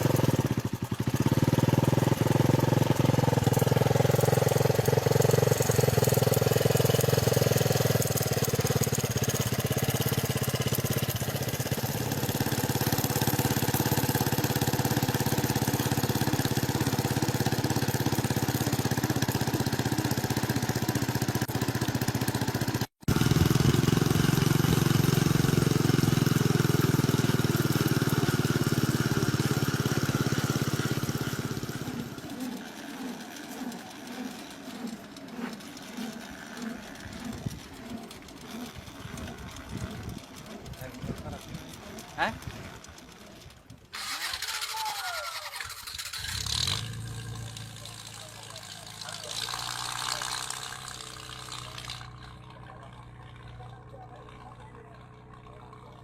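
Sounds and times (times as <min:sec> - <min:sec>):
helicopter engine running: 0:00.0 - 0:56.0.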